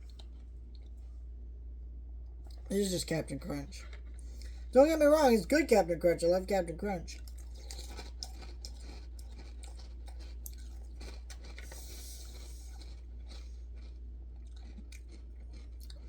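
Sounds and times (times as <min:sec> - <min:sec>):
crunchy cereal being chewed: 0:00.0 - 0:01.2, 0:02.4 - 0:02.8, 0:03.7 - 0:04.8, 0:07.0 - 0:16.0
steady low hum: 0:00.0 - 0:16.0.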